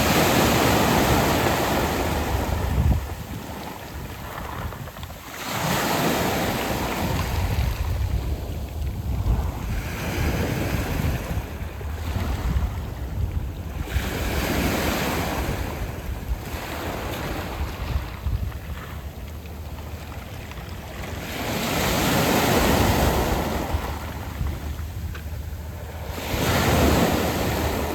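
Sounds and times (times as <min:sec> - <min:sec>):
waves washing over pebbles: 0:00.0 - 0:27.9
wind buffeting microphone: 0:00.0 - 0:27.9.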